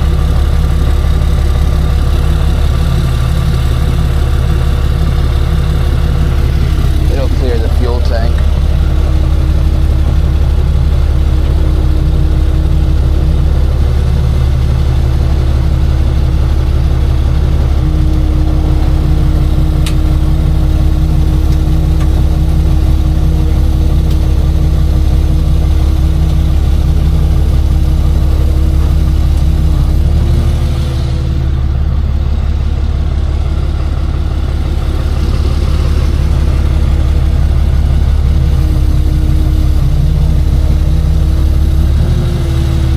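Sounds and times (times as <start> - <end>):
truck engine idling: 0.0 - 42.9.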